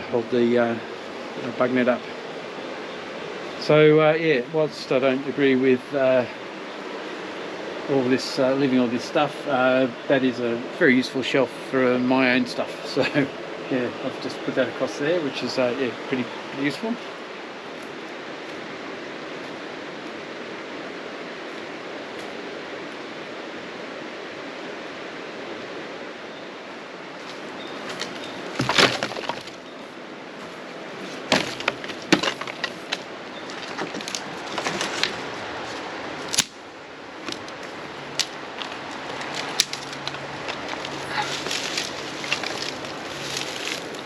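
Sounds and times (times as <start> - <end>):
river water rushing: 0.0 - 44.0
sharp cracks and snaps: 36.3 - 36.6, 37.2 - 44.0.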